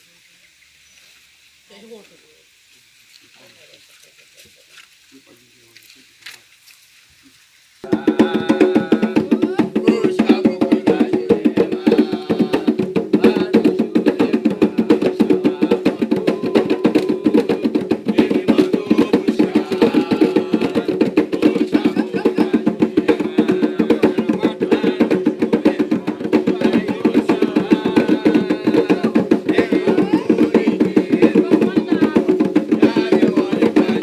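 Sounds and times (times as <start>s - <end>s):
fast ritual percussion drumming: 7.8s - 34.0s.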